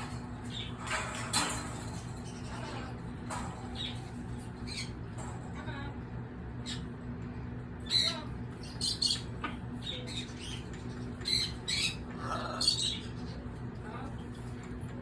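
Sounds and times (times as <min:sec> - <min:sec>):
low steady hum: 0:00.0 - 0:15.0
parrot chattering: 0:07.8 - 0:13.3.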